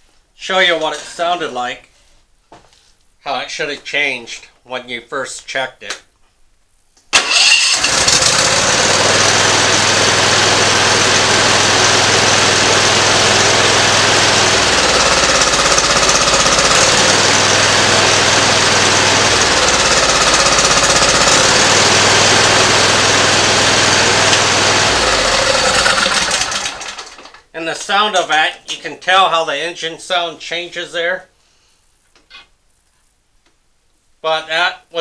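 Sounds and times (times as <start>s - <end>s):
mower engine running roughly: 7.2s - 27.4s.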